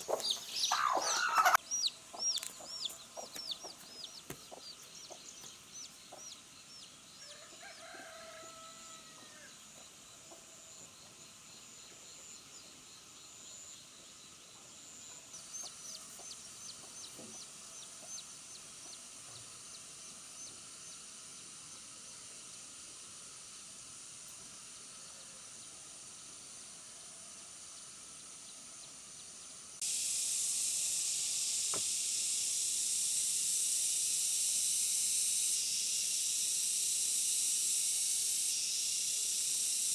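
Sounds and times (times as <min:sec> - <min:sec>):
chickens clucking: 0:00.0 - 0:06.4
small birds chirping: 0:00.0 - 0:07.5, 0:09.6 - 0:22.7
faint steady hiss: 0:00.0 - 0:39.9
loud steady hiss: 0:00.0 - 0:39.9.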